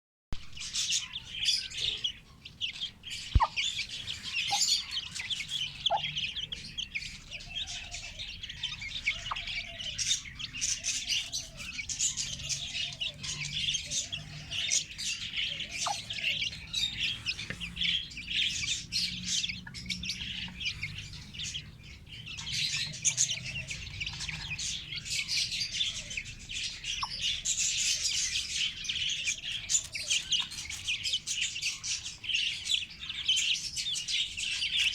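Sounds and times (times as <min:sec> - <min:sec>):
chicks cheeping: 0:00.4 - 0:34.9
hen clucking: 0:03.3 - 0:08.1, 0:08.9 - 0:21.7.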